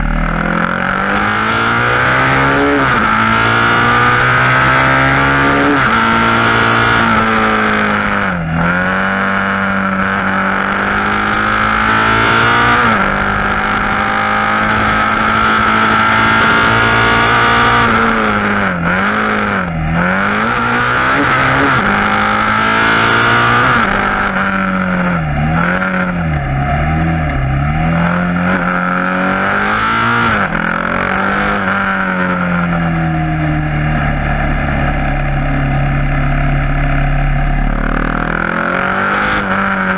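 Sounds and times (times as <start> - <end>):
motorcycle engine under load: 0.0 - 39.9.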